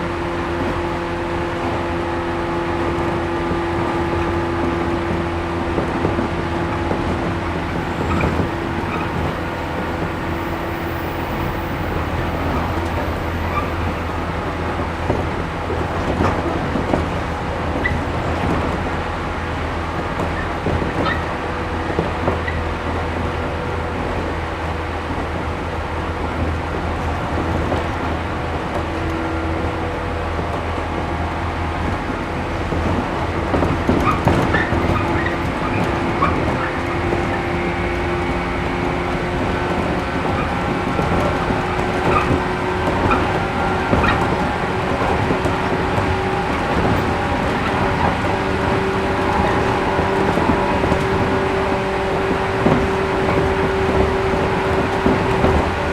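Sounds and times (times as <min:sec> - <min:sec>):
train wheels rumbling on rail: 0:00.0 - 0:55.9.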